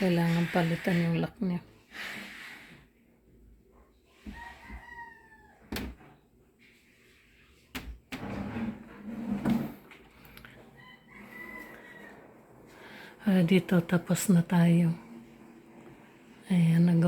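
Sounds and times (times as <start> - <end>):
rooster crowing: 4.3 - 5.7, 10.7 - 12.3.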